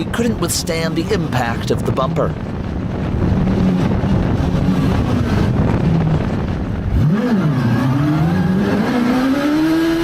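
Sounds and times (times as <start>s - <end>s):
vehicle engine revving: 2.6s - 10.0s.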